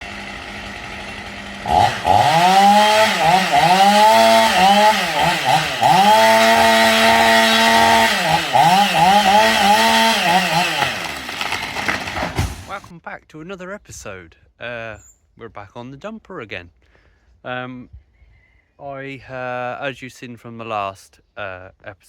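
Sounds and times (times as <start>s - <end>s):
chainsaw engine revving: 0.0s - 12.9s.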